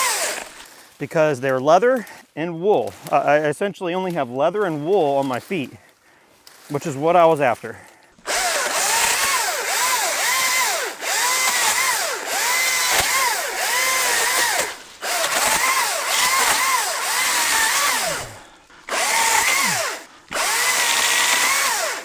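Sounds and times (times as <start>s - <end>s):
electric chainsaw motor whining: 0.0s - 0.8s, 8.2s - 22.0s.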